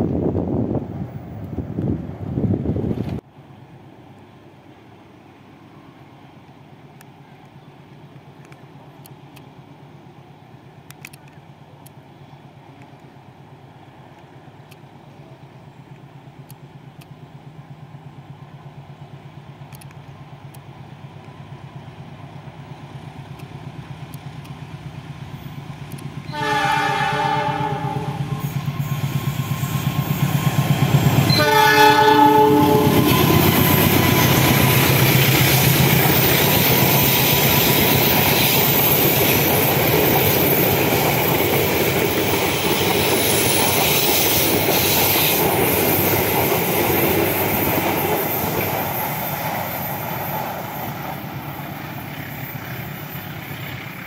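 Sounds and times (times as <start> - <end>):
diesel train engine drone: 0.0 - 54.0
train horn blasts: 26.3 - 30.2, 31.2 - 34.4
wheels on rails: 27.7 - 54.0.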